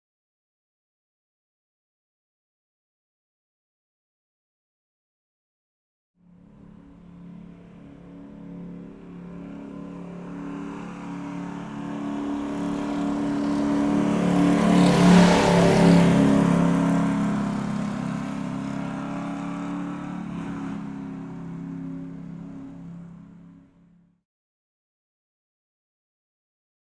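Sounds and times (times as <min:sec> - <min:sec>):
vehicle engine driving past: 0:06.2 - 0:24.1.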